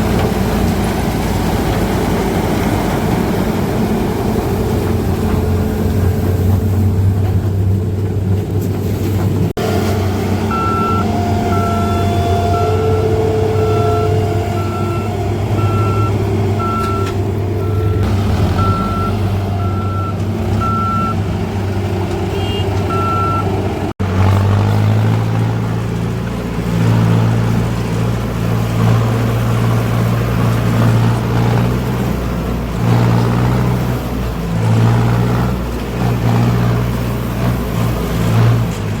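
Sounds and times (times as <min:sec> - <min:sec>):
heavy diesel engine running: 0:00.0 - 0:39.0
reversing alarm beeping: 0:10.5 - 0:21.2, 0:22.4 - 0:23.5.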